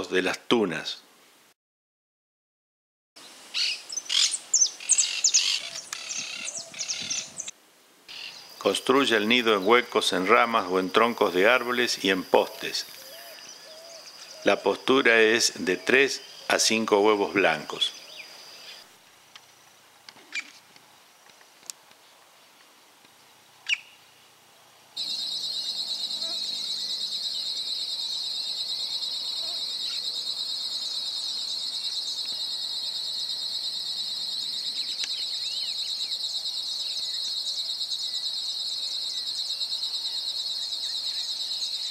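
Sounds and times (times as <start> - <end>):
birds chirping: 3.2 - 7.5, 8.1 - 18.8, 25.0 - 41.9
faint background hiss: 3.2 - 41.9.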